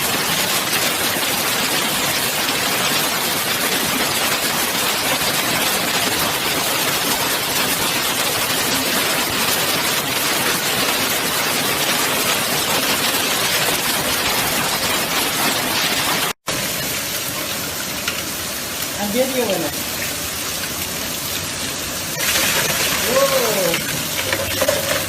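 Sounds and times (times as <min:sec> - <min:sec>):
hailstones pelting down: 0:00.0 - 0:25.0.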